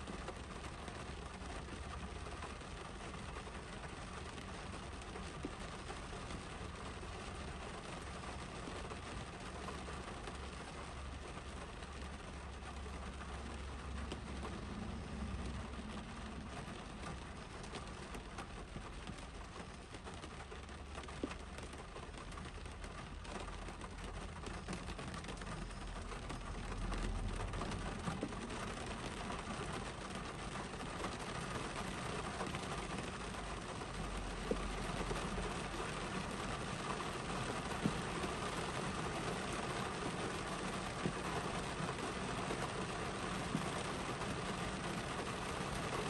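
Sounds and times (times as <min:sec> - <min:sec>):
rain pattering on car roof: 0:00.0 - 0:46.0
low rumble: 0:13.3 - 0:18.0.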